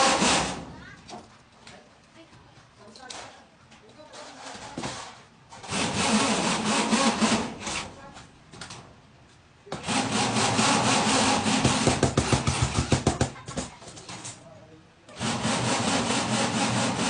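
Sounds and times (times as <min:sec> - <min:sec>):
hammer drill running: 0:00.0 - 0:00.6, 0:05.7 - 0:07.5, 0:09.8 - 0:12.0, 0:15.2 - 0:17.0.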